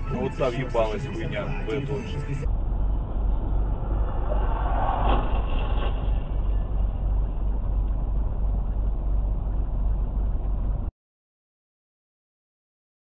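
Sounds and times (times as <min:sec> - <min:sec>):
car engine and road noise: 0:00.0 - 0:10.9
loud rough noise: 0:02.4 - 0:10.8.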